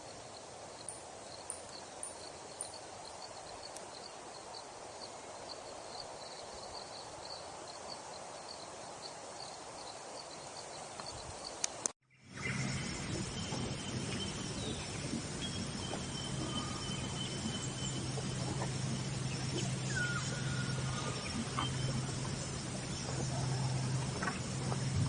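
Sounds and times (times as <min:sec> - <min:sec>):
steady hiss and low hum: 0:00.0 - 0:25.0
faint bird whistles and chirps: 0:12.3 - 0:24.0.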